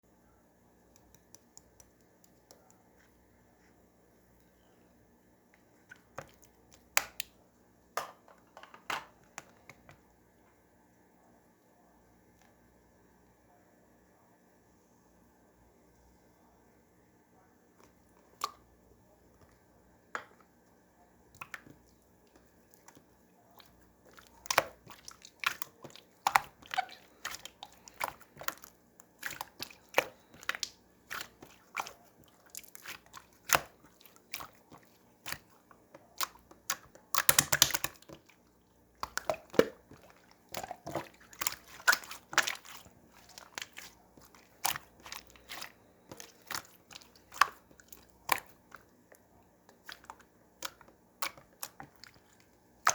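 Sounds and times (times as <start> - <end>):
slime clicking and crackling: 36.2 - 38.2.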